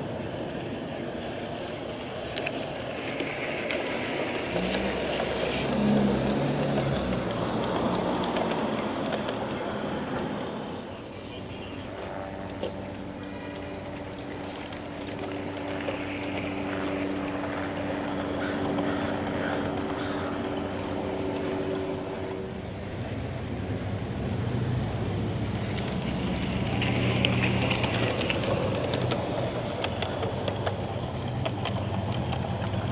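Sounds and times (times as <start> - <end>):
model train motor hum: 0.0 - 32.9.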